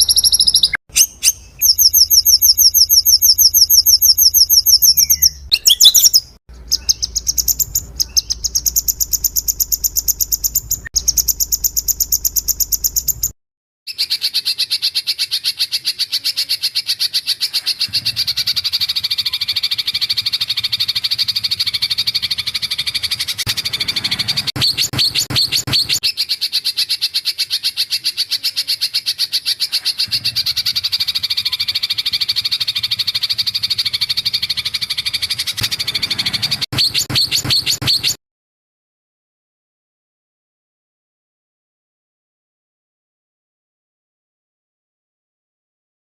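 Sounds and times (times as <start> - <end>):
bird rattling trill: 6.8 - 13.3, 17.6 - 26.2, 29.7 - 38.2.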